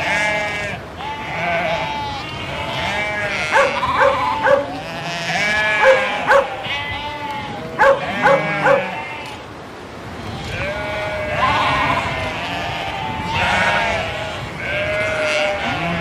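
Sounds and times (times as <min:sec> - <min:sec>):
sheep bleating: 0:00.0 - 0:09.5, 0:10.2 - 0:16.0
dog barking: 0:03.4 - 0:04.8, 0:05.8 - 0:06.6, 0:07.8 - 0:09.0.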